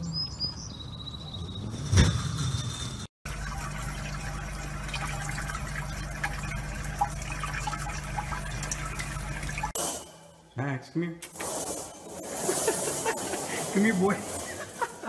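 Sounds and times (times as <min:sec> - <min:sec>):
tap water running and splashing: 0:03.3 - 0:09.8
low steady hum: 0:03.3 - 0:10.7.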